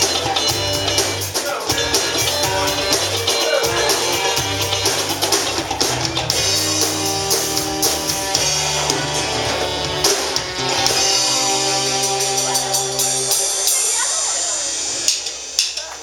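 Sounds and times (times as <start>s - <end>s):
live rock band playing: 0.0s - 15.9s.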